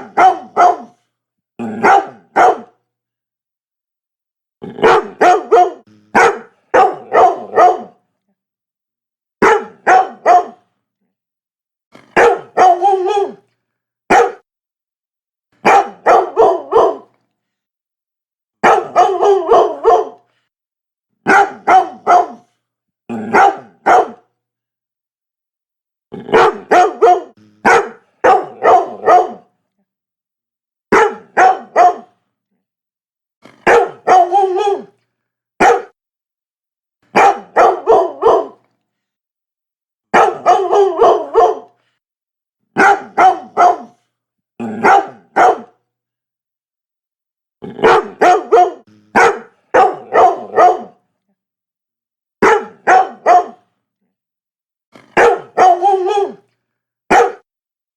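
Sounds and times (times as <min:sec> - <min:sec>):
dog barking: 0:00.0 - 0:01.0, 0:01.6 - 0:02.8, 0:04.7 - 0:08.0, 0:09.4 - 0:10.7, 0:12.0 - 0:13.4, 0:14.1 - 0:14.5, 0:15.6 - 0:17.2, 0:18.6 - 0:20.3, 0:21.2 - 0:22.6, 0:23.2 - 0:24.3, 0:26.2 - 0:29.5, 0:30.9 - 0:32.2, 0:33.4 - 0:35.0, 0:35.6 - 0:36.0, 0:37.1 - 0:38.6, 0:40.1 - 0:41.8, 0:42.8 - 0:44.0, 0:44.6 - 0:45.8, 0:47.7 - 0:51.0, 0:52.4 - 0:53.7, 0:55.0 - 0:56.4, 0:57.1 - 0:57.5.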